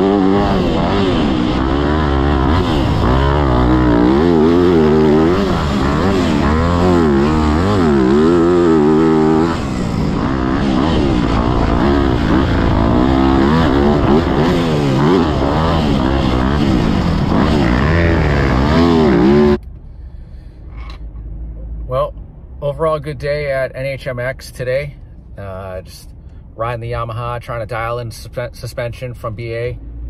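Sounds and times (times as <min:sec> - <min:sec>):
motocross engine revving: 0:00.0 - 0:19.6.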